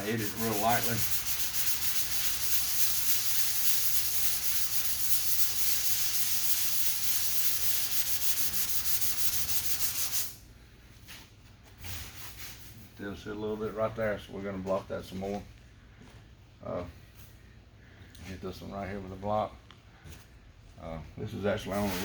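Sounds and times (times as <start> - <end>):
sandpaper rubbing hiss: 0.0 - 10.4.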